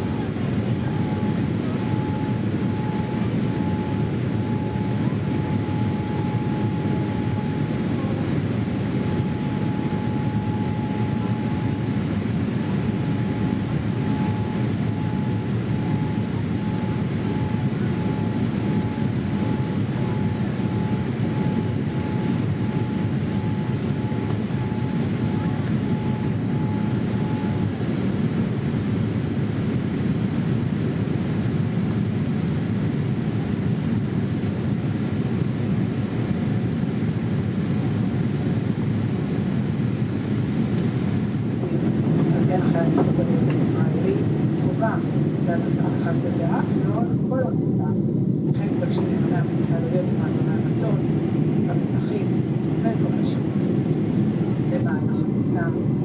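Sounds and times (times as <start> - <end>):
airplane cabin engine rush: 0.0 - 56.0
pulsing beep: 0.8 - 7.8, 8.9 - 12.0, 12.6 - 27.7.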